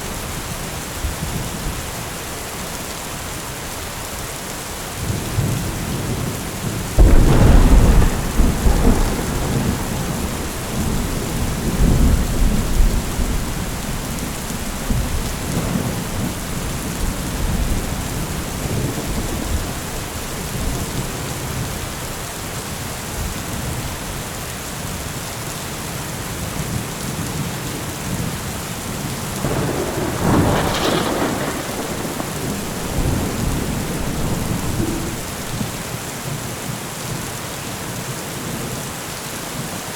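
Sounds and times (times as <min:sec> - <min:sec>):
steady rain: 0:00.0 - 0:39.9
thunder rumbling: 0:05.1 - 0:22.2, 0:29.4 - 0:36.0.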